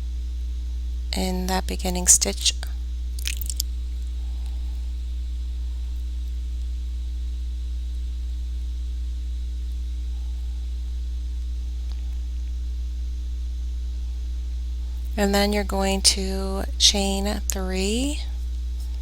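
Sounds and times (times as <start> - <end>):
low hum with faint hiss: 0.0 - 19.0.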